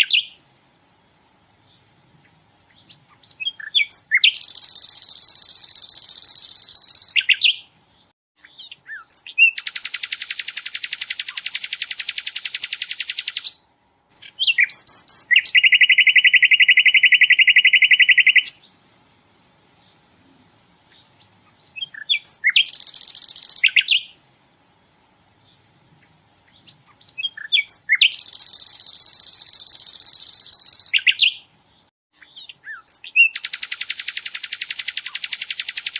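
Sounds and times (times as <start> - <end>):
bird singing fast trills: 0.0 - 0.4, 2.7 - 7.8, 8.4 - 18.7, 20.9 - 24.2, 26.5 - 35.9
short bird chirps: 0.0 - 0.4, 2.7 - 18.7, 20.9 - 24.2, 26.5 - 35.9.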